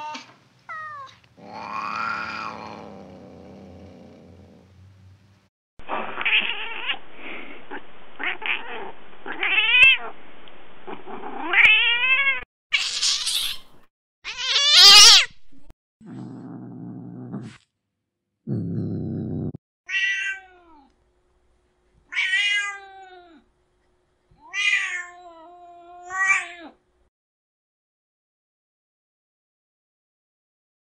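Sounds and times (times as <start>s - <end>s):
cat meowing wails: 0.0s - 2.8s, 14.3s - 15.3s, 19.9s - 20.9s, 22.1s - 23.4s, 24.4s - 26.8s
cat yowling: 0.0s - 2.9s, 14.3s - 15.3s, 22.1s - 23.4s, 24.4s - 26.8s
cat growling: 1.3s - 4.8s, 16.0s - 17.6s, 18.5s - 19.6s.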